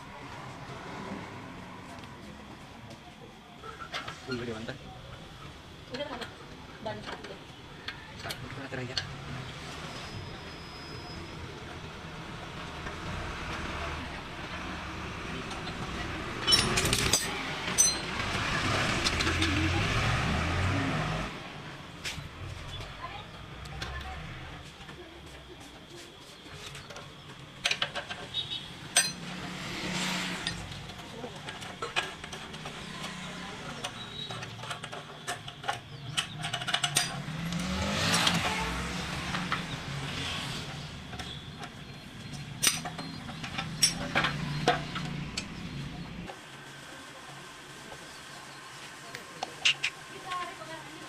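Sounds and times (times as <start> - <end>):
metal tools clinking: 16.4 - 18.2, 28.9 - 29.5, 30.3 - 38.6, 41.1 - 45.5.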